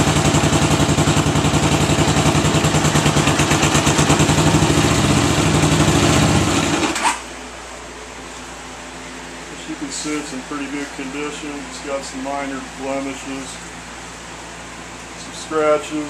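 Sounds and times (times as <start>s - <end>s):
motorcycle engine idling: 0.0s - 6.9s
engine stopping knock: 0.0s - 7.0s.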